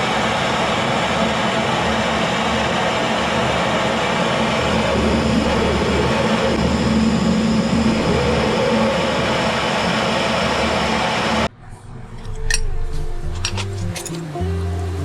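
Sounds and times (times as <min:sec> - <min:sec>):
blowtorch flame roaring: 0:00.0 - 0:11.5.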